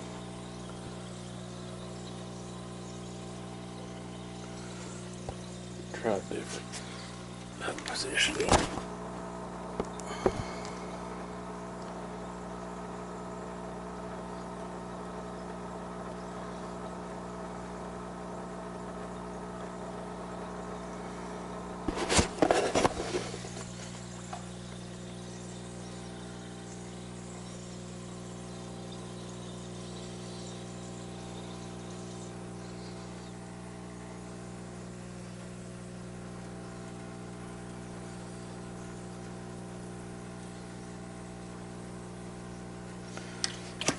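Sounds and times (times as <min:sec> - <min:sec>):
steady machine hum: 0:00.0 - 0:43.9
clattering noise: 0:21.9 - 0:23.9.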